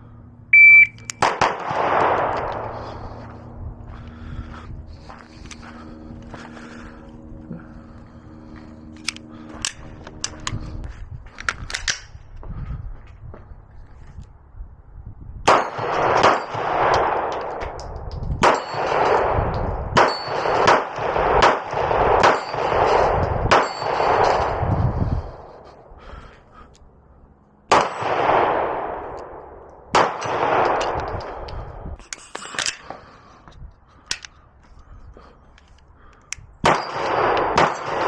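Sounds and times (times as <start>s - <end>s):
pistol shots with echo: 0.6s - 2.9s, 15.5s - 17.8s, 18.4s - 24.6s, 27.7s - 31.5s, 36.6s - 38.0s.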